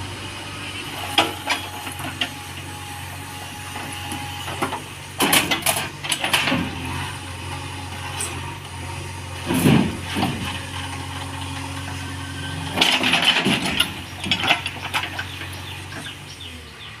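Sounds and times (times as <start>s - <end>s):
vehicle engine running: 0.0s - 17.0s
rattling clattering knocks: 12.7s - 16.1s.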